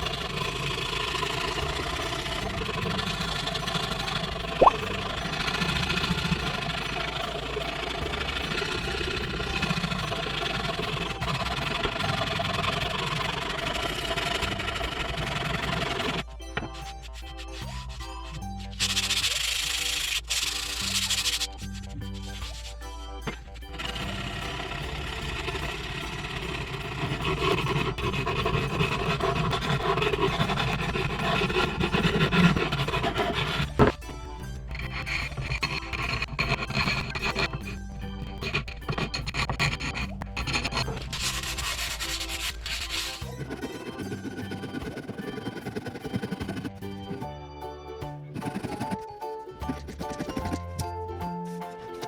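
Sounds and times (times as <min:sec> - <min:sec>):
tool scraping wood: 0:00.0 - 0:47.3, 0:48.3 - 0:52.0.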